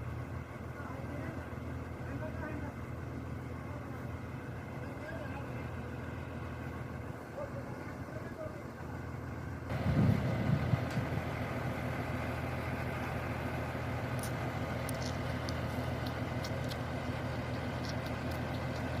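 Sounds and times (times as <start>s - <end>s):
construction machine engine running: 0.0s - 19.0s
faint clicks: 14.1s - 19.0s.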